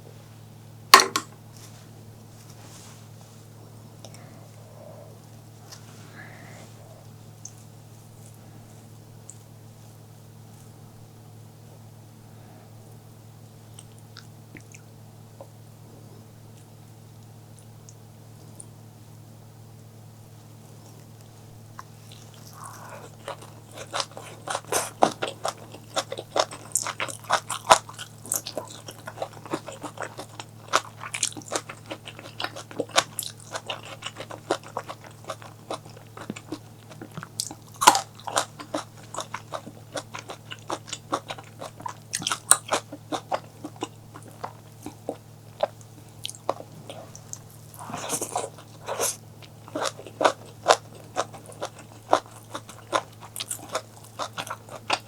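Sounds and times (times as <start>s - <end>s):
low steady hum: 0.0s - 55.0s
crunchy biting and chewing: 21.7s - 55.0s.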